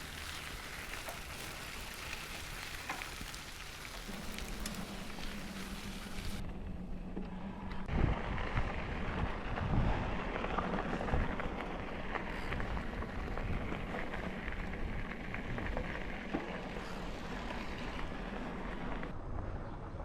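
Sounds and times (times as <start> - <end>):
crackle of small ticks: 0.0 - 5.4
bicycle tyres rolling: 0.0 - 20.0
wind on microphone: 7.8 - 18.1.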